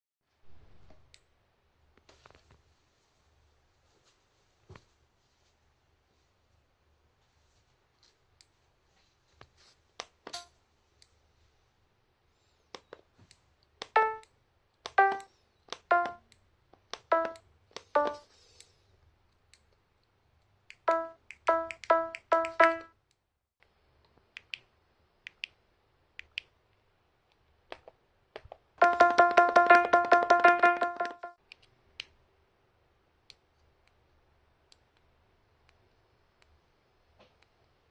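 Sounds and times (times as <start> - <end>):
short musical notes: 14.0 - 14.2, 15.0 - 15.3, 15.9 - 16.2, 17.1 - 17.4, 18.0 - 18.2, 20.9 - 22.9, 28.8 - 31.4.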